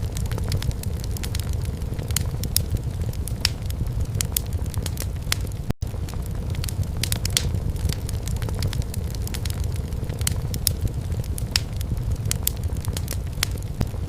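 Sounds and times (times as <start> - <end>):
low rumble of flames: 0.0 - 14.0
wood fire crackling and popping: 0.0 - 14.0.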